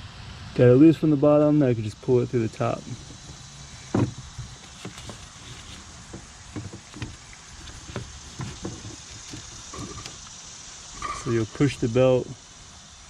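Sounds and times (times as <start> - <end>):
light knocks and rubbing: 2.6 - 10.3, 11.0 - 11.6
belt handling thump: 3.9 - 9.9.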